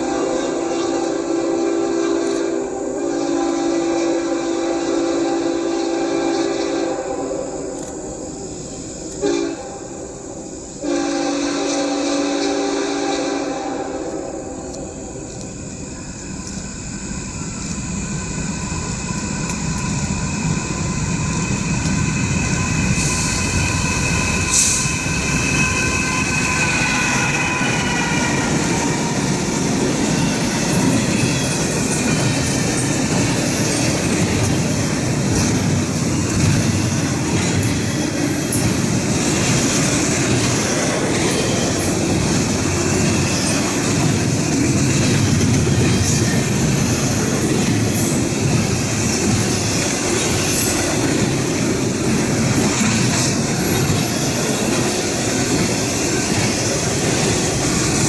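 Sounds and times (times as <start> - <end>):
freight cars rumbling on rails: 13.5 - 58.0
high wheel squeal: 13.9 - 58.0.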